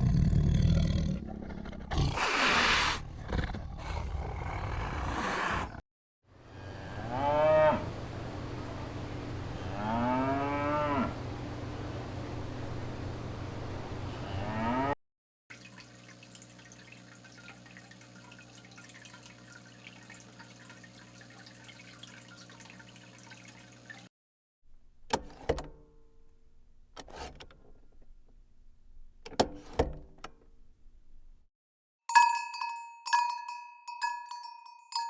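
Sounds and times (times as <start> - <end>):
cow mooing: 6.6 - 8.0, 9.6 - 11.2, 14.2 - 15.0.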